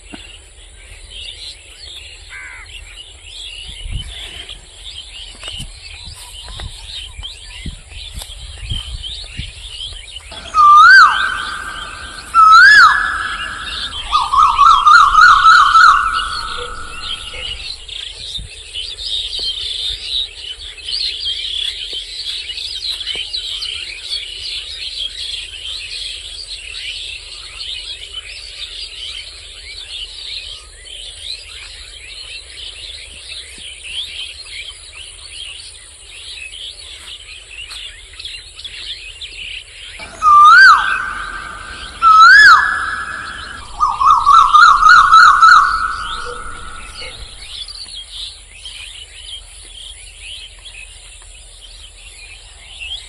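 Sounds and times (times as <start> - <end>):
flock of small birds chirping: 0.0 - 53.0
warbling siren-like whistle: 10.3 - 17.8, 40.0 - 47.7.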